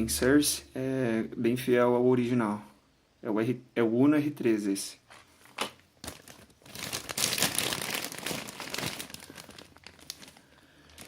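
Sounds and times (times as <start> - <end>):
plastic packaging crinkling: 5.1 - 11.0.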